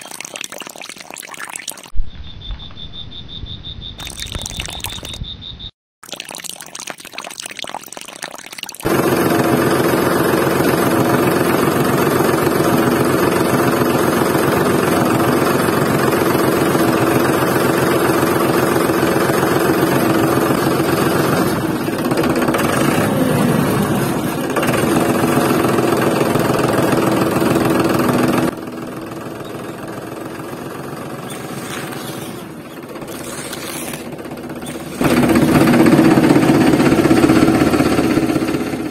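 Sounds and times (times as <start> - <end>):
tractor engine chugging: 8.9 - 38.9.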